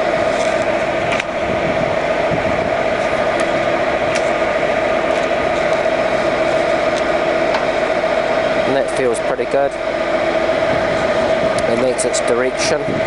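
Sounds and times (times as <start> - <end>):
lathe gear whine: 0.0 - 13.0.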